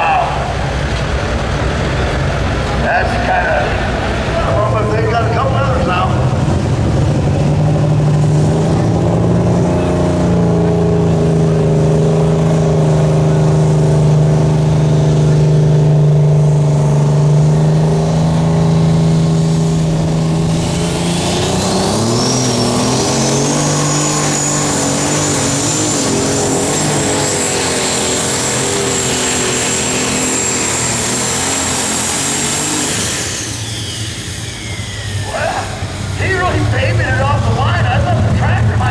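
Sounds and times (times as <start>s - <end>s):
diesel engine under load: 0.0s - 38.9s
high whine: 13.4s - 38.9s.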